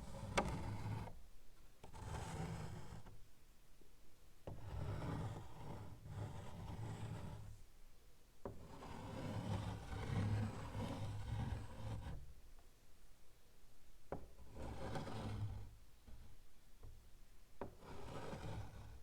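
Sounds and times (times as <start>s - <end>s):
chalk scratching on blackboard: 0.0s - 1.2s, 1.8s - 3.2s, 4.5s - 7.6s, 8.5s - 12.3s, 14.2s - 16.4s, 17.6s - 19.0s.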